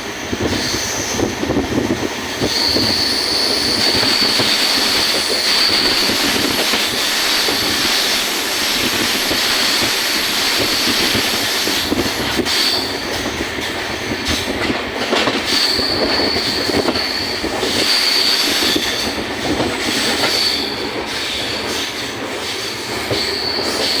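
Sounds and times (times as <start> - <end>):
train rumbling on track: 0.0 - 24.0
high-pitched wheel squeal: 2.4 - 6.5.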